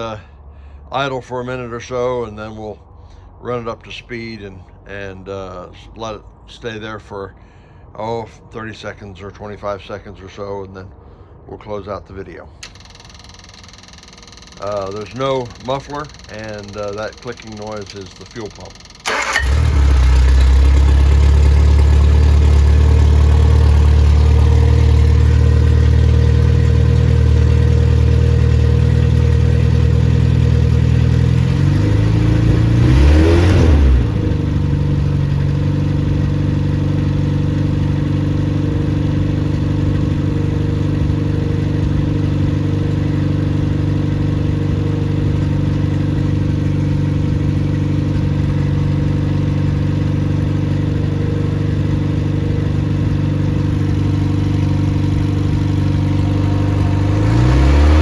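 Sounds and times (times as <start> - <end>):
car engine running without muffler: 12.7 - 58.0.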